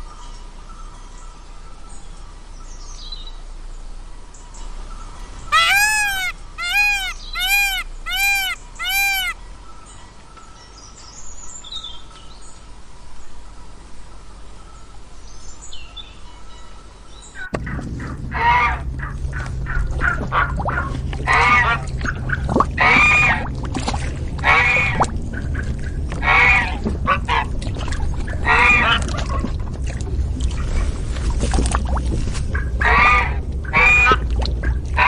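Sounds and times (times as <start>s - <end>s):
loud rising and falling bird call: 5.4s - 9.4s
rapid loud animal calls: 5.5s - 9.4s, 24.4s - 27.5s
low hum: 17.5s - 35.0s.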